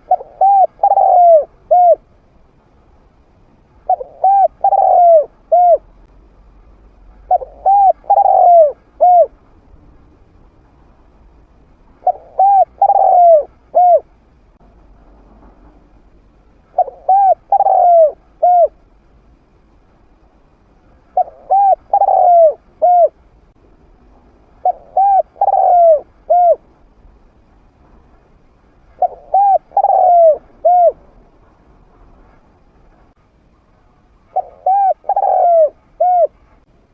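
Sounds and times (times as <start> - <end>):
dove cooing: 0.0 - 2.1, 3.9 - 5.9, 7.3 - 9.4, 12.0 - 14.1, 16.7 - 18.8, 21.2 - 23.2, 24.6 - 26.6, 29.0 - 31.0, 34.3 - 36.4.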